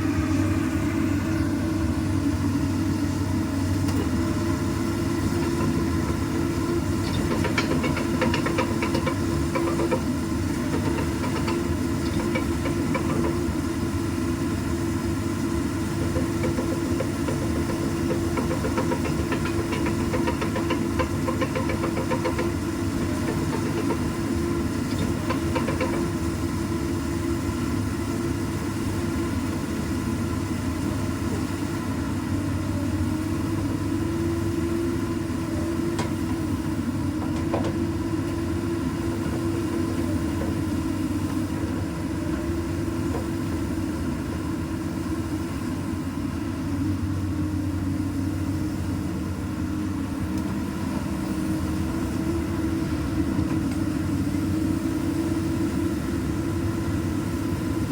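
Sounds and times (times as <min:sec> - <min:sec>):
diesel engine running steadily: 0:00.0 - 0:57.9.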